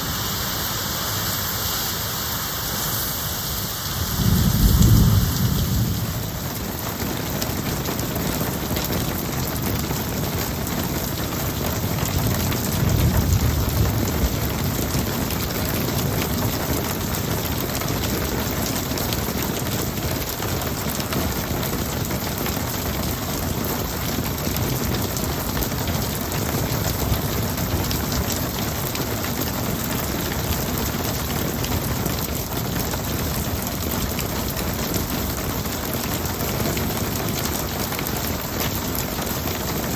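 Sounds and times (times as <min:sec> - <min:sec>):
heavy rain pouring: 0:00.0 - 0:39.9
low thunder rumble: 0:03.9 - 0:07.0, 0:12.5 - 0:15.0.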